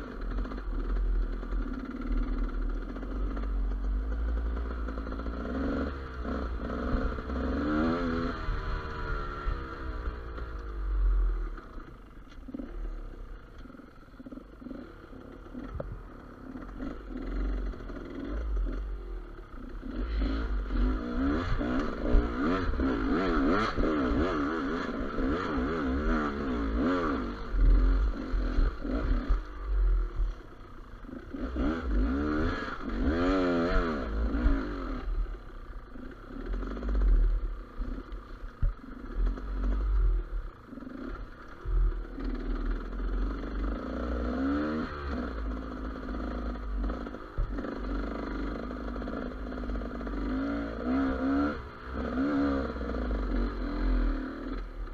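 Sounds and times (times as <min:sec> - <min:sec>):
motorcycle engine revving: 0:00.0 - 0:54.9
clatter from rough ground: 0:11.4 - 0:31.3.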